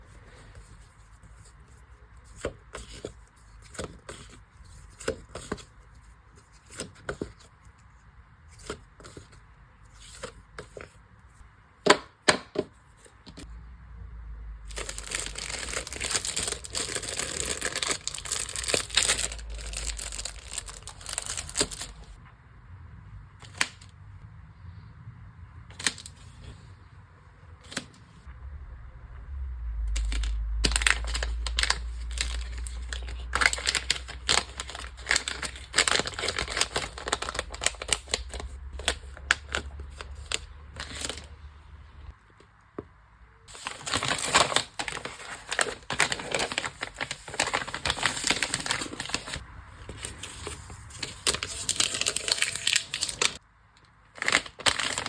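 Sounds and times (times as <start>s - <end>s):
packaging crinkling and tearing: 14.7s - 22.2s, 29.9s - 41.3s, 43.5s - 53.4s, 54.2s - 55.0s.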